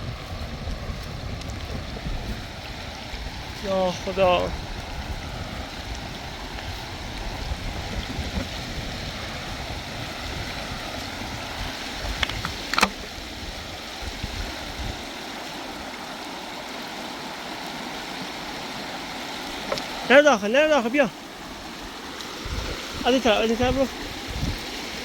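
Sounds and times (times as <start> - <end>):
river water rushing: 0.0 - 25.0
sharp click: 12.2 - 13.0.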